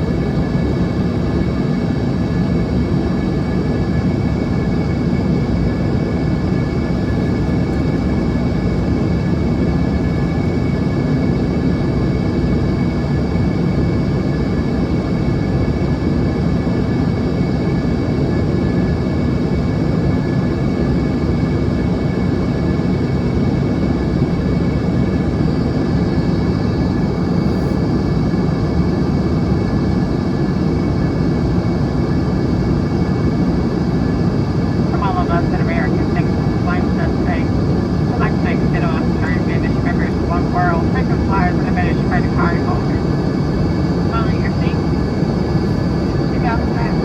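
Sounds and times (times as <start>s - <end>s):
airplane cabin roar: 0.0s - 19.4s, 20.0s - 47.0s.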